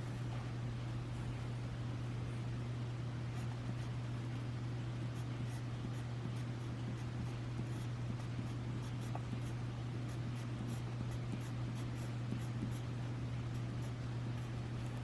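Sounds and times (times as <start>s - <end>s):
low electrical hum: 0.0s - 15.0s
pen scratching on paper: 5.1s - 12.9s.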